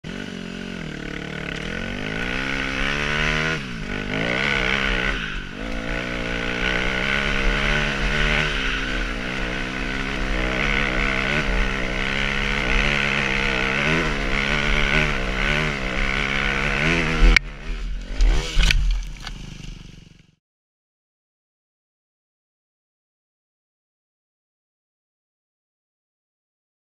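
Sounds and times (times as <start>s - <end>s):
dirt bike engine revving: 0.0s - 20.4s.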